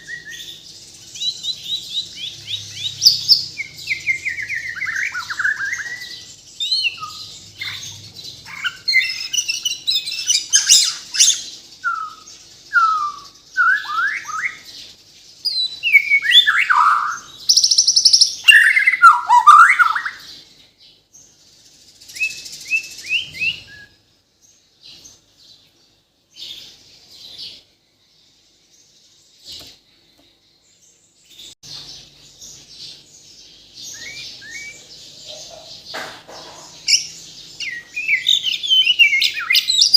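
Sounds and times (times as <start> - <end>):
bird singing whistles and chirps: 0.0 - 20.5, 21.7 - 24.1, 31.4 - 35.7, 36.8 - 39.9.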